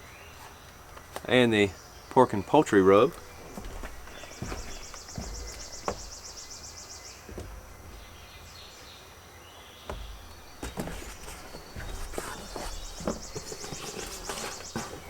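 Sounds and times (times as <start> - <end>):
knocks and rustles of handling: 3.0 - 8.6, 9.8 - 15.0.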